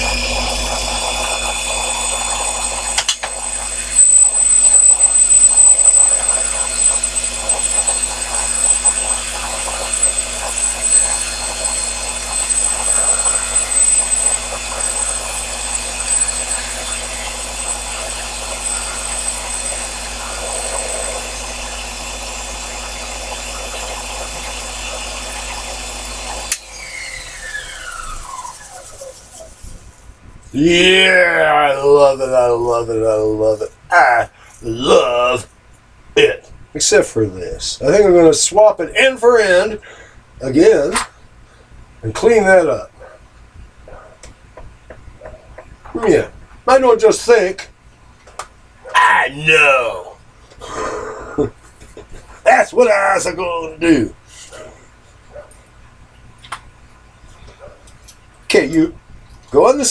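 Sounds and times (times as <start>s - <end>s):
lathe cutting metal: 0.0s - 29.6s
lathe spindle winding down: 0.0s - 29.7s
thin high whine: 0.0s - 35.5s, 48.8s - 51.5s, 52.2s - 55.5s.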